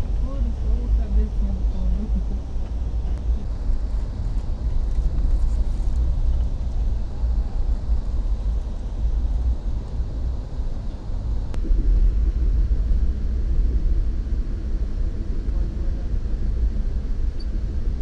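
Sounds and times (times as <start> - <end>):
moving train rumble inside coach: 0.0 - 18.0.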